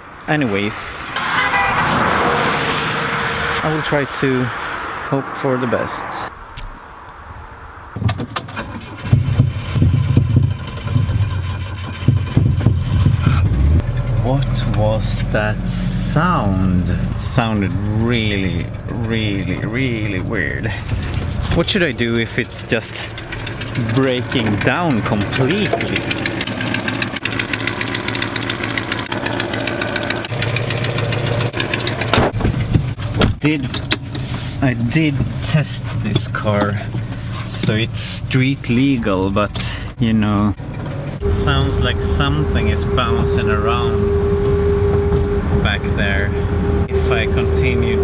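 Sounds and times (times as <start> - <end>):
old car engine rumbling: 7.9 - 48.0
sharp knocks: 8.0 - 14.0.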